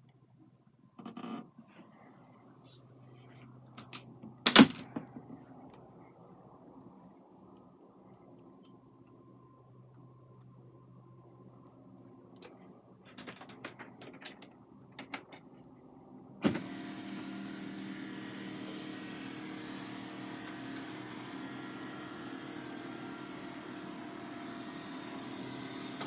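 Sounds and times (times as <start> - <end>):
steady mechanical hum: 14.4 - 26.0.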